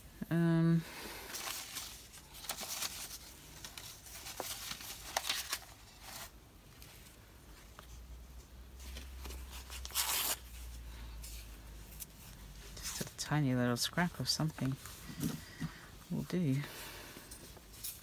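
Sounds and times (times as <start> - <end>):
paper rustling: 1.3 - 8.1, 8.8 - 15.8
paper tearing: 9.8 - 10.5.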